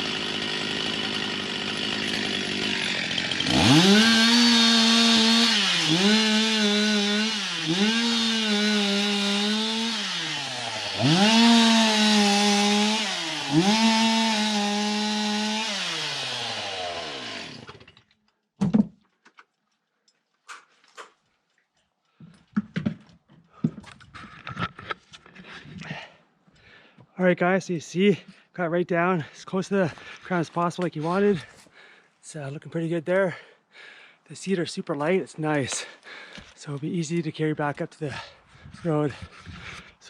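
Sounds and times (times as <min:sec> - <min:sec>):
chainsaw cutting stump: 0:00.0 - 0:18.1, 0:38.6 - 0:40.0.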